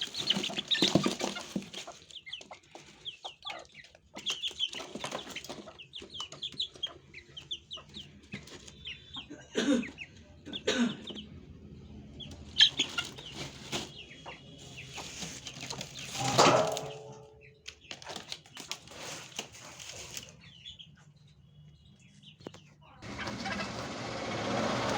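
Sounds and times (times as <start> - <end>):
chickens clucking: 0.0 - 24.9
high-pitched chicken call: 23.0 - 24.0
wings flapping: 23.0 - 24.0.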